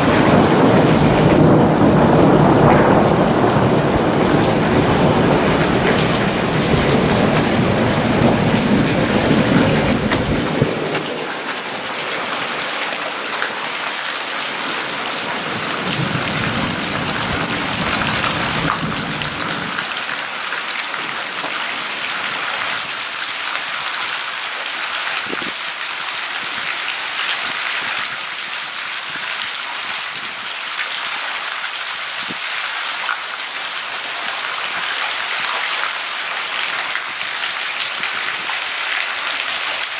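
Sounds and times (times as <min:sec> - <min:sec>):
thunder rumble: 0:00.0 - 0:11.7, 0:15.3 - 0:20.0
heavy rain: 0:00.0 - 0:39.9.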